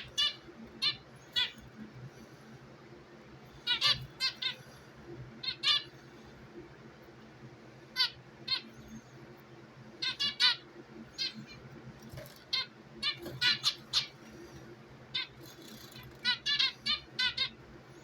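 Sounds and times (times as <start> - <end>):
pet birds chirping: 0.0 - 1.9, 3.6 - 6.1, 7.9 - 9.3, 9.9 - 18.0
steady low hum: 0.0 - 18.0.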